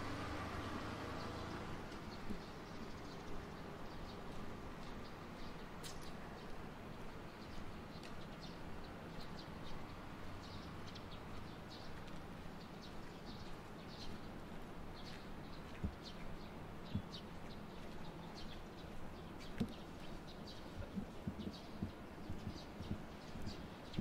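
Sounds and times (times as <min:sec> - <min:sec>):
low city hum: 0:00.0 - 0:24.0
small birds chirping: 0:00.0 - 0:24.0.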